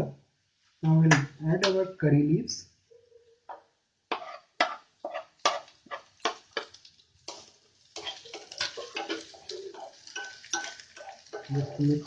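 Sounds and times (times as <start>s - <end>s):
leaves sizzling in hot oil: 4.0s - 12.0s.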